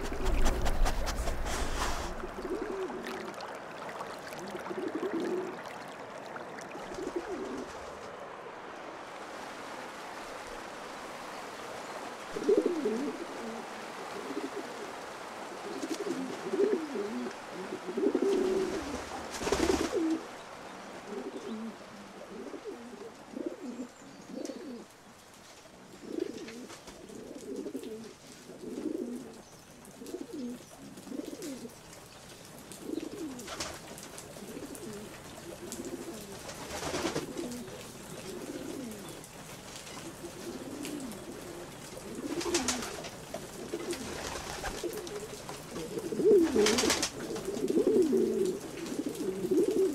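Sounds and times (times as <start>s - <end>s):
short rustling: 0.0s - 2.6s
pigeons cooing: 0.0s - 3.6s, 4.3s - 5.9s, 6.7s - 8.0s, 12.3s - 24.9s, 25.8s - 31.8s, 32.7s - 49.9s.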